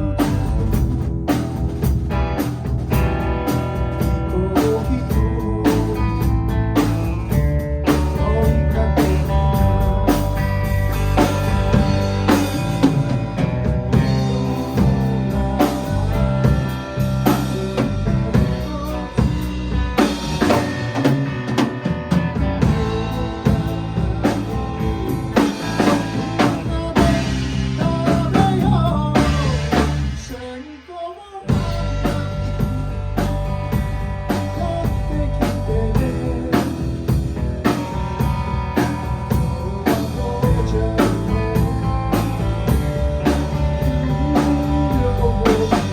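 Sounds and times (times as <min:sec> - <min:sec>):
blues-rock band playing: 0:00.0 - 0:45.9.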